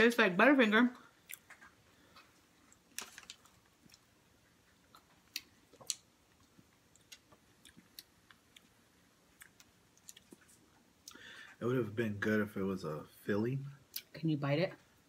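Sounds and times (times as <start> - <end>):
person chewing: 1.2 - 11.2.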